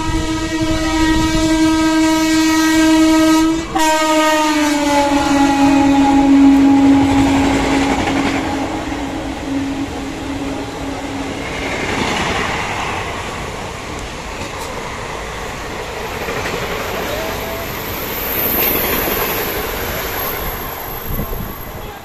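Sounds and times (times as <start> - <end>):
train horn: 0.0 - 11.7
train coaches rumbling past: 0.0 - 22.0.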